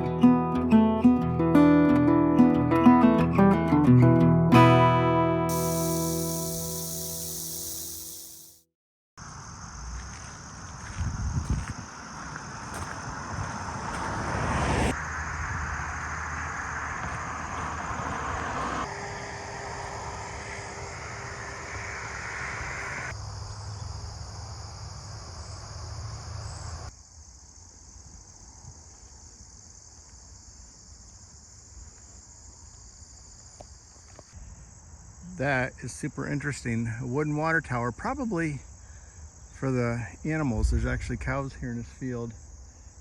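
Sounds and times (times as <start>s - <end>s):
road traffic rushing: 5.5s - 8.6s, 12.0s - 26.9s
crickets and insects chirring: 5.5s - 43.0s.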